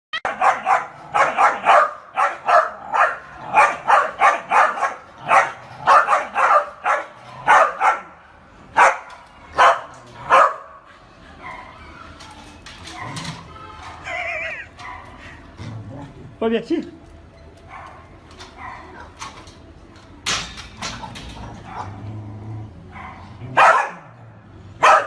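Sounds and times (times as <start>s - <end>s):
dog barking: 0.2s - 8.2s, 8.8s - 10.8s, 22.9s - 24.1s, 24.8s - 25.0s.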